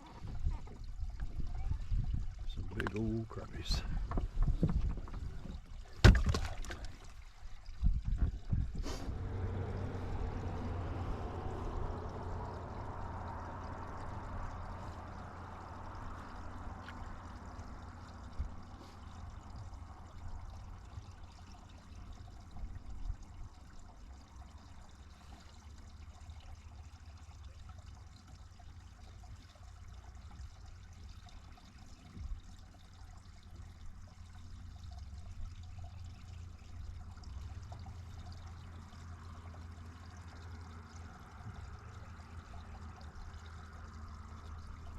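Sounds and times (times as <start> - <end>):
water pouring and trickling: 0.0 - 44.9
steady low hum: 7.6 - 27.0.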